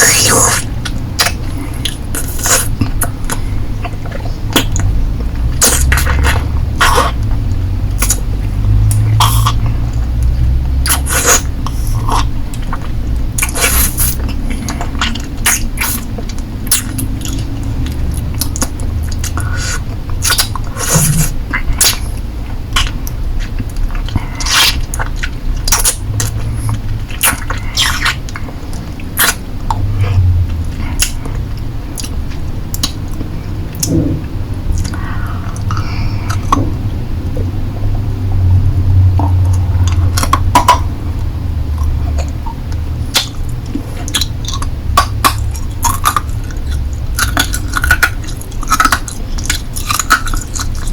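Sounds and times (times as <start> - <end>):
licking and sucking lollipop: 0.0 - 3.4, 7.9 - 22.1.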